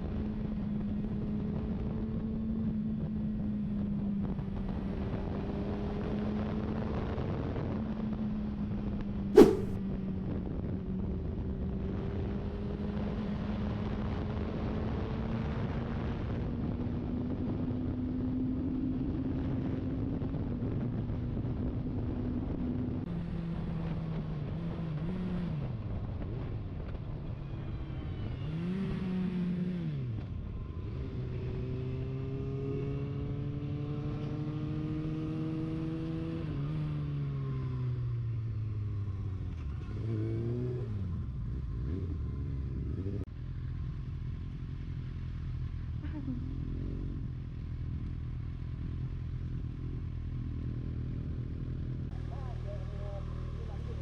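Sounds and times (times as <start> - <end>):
wind rushing: 9.4 - 9.8.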